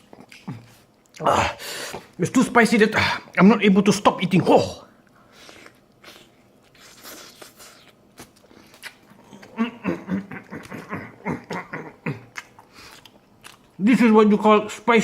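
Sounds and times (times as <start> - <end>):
man chewing food: 0.0 - 2.2, 4.9 - 13.8
wet mouth clicks and crunches: 5.4 - 9.6, 11.5 - 13.8.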